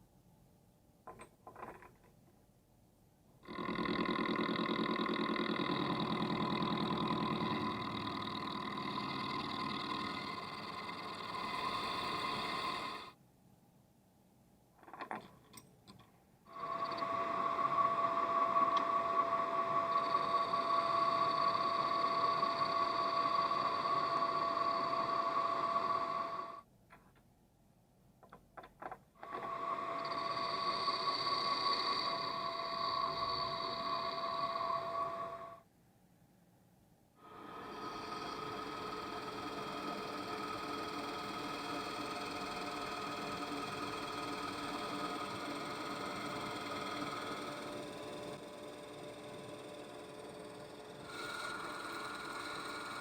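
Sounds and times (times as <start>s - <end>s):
metalworking machine whining: 3.5s - 13.1s, 16.5s - 26.6s, 29.2s - 35.6s, 37.2s - 53.0s.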